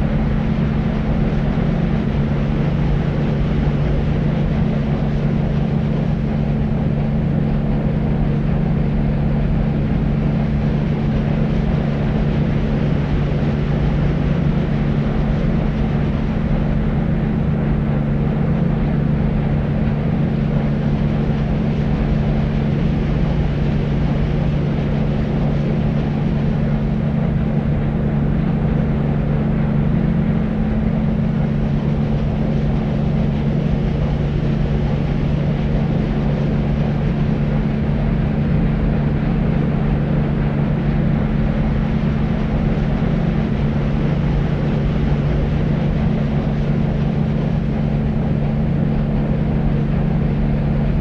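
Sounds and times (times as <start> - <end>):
deep white noise: 0.0 - 51.0.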